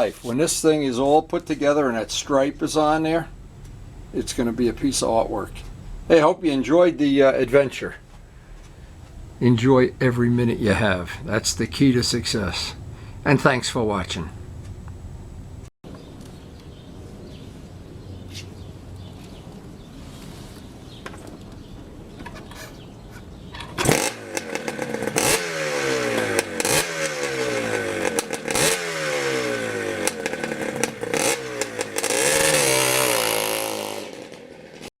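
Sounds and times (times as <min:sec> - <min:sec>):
motorcycle engine revving: 0:08.8 - 0:15.7, 0:23.6 - 0:34.9.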